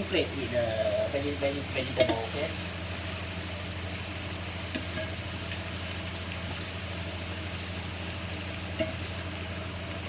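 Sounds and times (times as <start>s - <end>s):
food sizzling in a frying pan: 0.0s - 10.0s
metal spoon clicking against pan: 8.8s - 9.0s.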